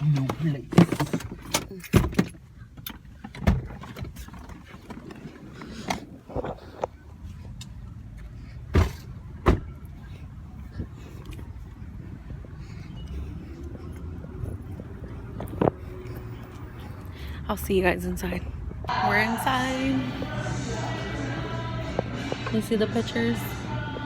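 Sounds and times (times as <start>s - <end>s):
low steady rumble: 7.0s - 24.0s.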